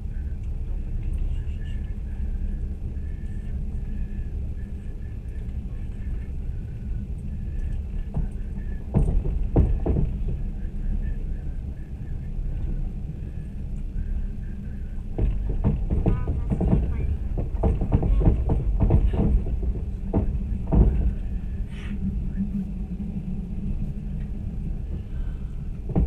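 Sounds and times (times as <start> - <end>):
train wheels rumbling: 0.0 - 26.0
sharp knocks: 15.2 - 21.1.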